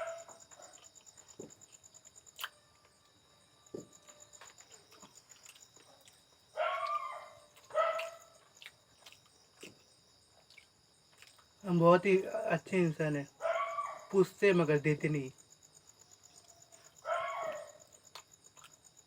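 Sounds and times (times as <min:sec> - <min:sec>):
small dog yapping: 0:00.0 - 0:00.8, 0:06.6 - 0:08.3, 0:13.4 - 0:14.1, 0:17.0 - 0:17.8.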